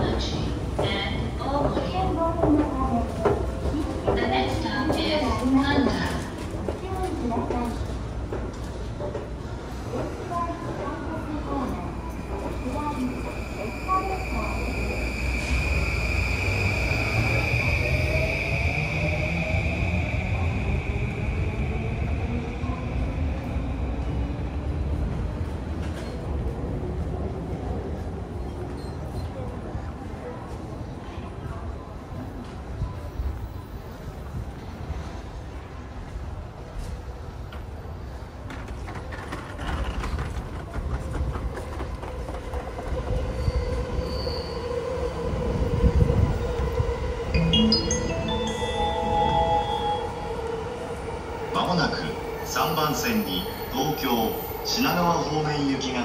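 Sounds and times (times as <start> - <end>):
electric train rumble: 11.8 - 27.8, 38.7 - 56.0.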